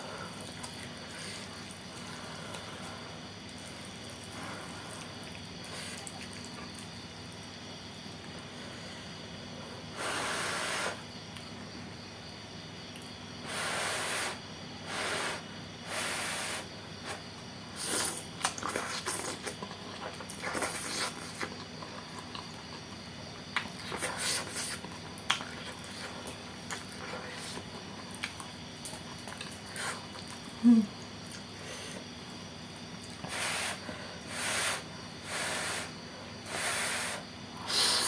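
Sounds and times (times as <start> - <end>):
chewing with crisp crunches: 0.0 - 8.9, 17.1 - 33.3.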